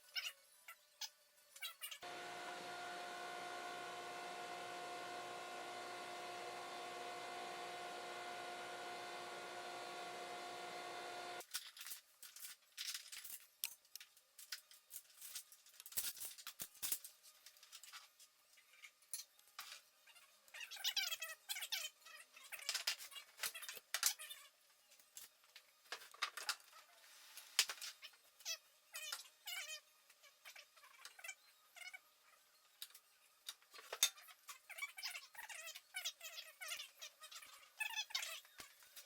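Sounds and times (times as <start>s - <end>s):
steady hum over hiss: 2.0s - 11.4s.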